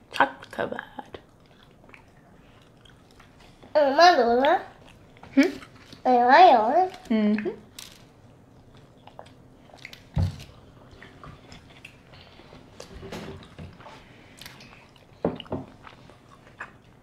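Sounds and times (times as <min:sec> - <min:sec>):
chewing and biting soft food: 0:01.2 - 0:03.7, 0:08.5 - 0:17.0.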